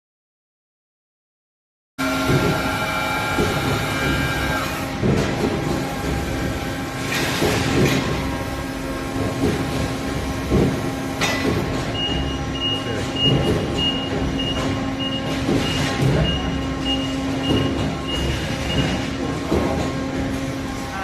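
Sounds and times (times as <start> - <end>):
forklift humming and clattering: 2.0 - 21.0
forklift warning beeper: 11.9 - 19.0.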